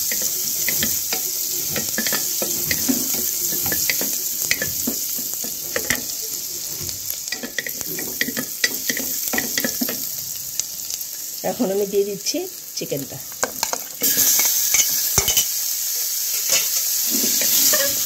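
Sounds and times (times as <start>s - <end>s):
wooden spatula scraping pot: 0.0s - 9.9s
garlic and ginger sizzling in butter: 0.0s - 18.0s.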